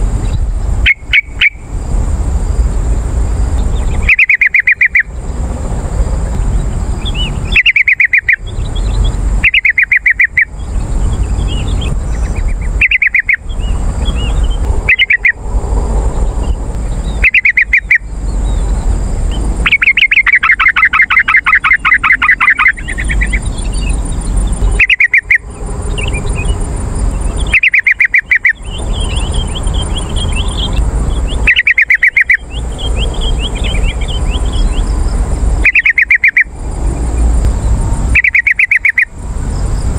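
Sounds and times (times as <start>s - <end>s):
bird rattling song bursts: 0.0s - 39.9s
faint bird chirps: 3.7s - 5.2s, 7.0s - 15.4s, 16.4s - 37.2s, 38.2s - 39.1s.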